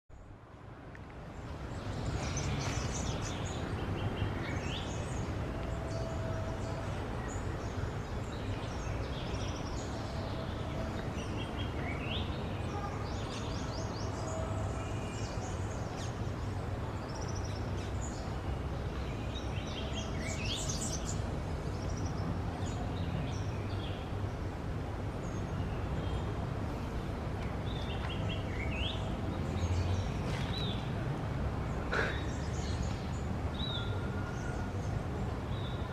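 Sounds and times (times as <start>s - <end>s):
bird chirping and twittering: 1.7s - 24.1s.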